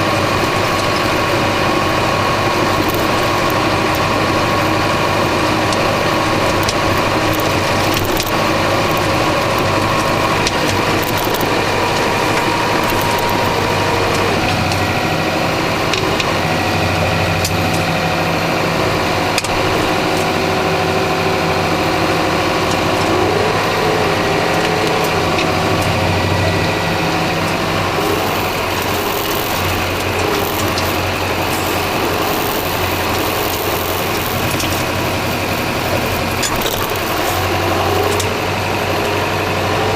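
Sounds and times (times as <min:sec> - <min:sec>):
tractor engine running: 0:00.0 - 0:39.9
clicks and rattles: 0:02.6 - 0:14.8, 0:27.5 - 0:38.4.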